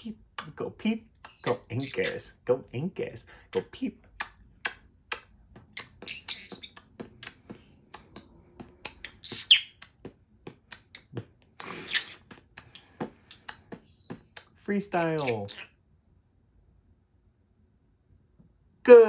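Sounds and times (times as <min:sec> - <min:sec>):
parrot hissing bursts: 0:11.6 - 0:12.3.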